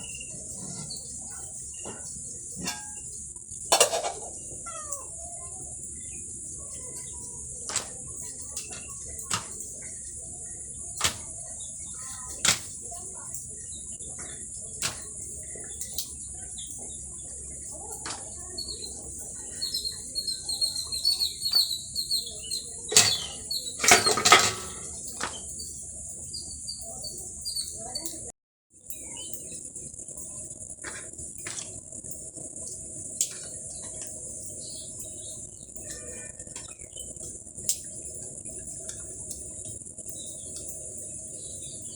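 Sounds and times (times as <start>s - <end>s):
bird chirps: 0.0s - 3.2s, 4.3s - 24.2s, 24.8s - 28.2s, 28.9s - 29.7s
insect drone: 0.0s - 41.9s.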